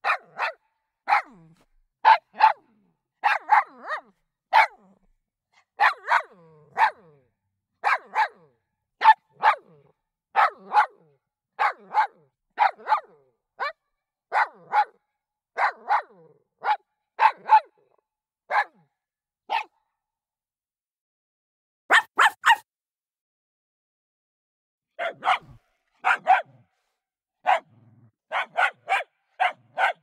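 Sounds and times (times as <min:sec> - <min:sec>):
dog barking: 0:00.0 - 0:19.8, 0:21.9 - 0:22.7, 0:24.9 - 0:30.0.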